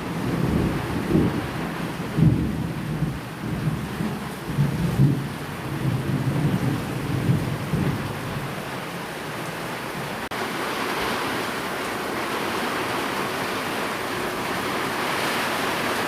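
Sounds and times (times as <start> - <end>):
low rolling thunder: 0.0 - 8.8
steady rain: 0.0 - 16.0.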